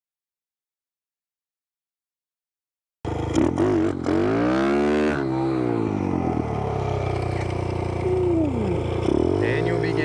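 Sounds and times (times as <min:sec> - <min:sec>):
pit bike engine revving: 0:03.1 - 0:10.0.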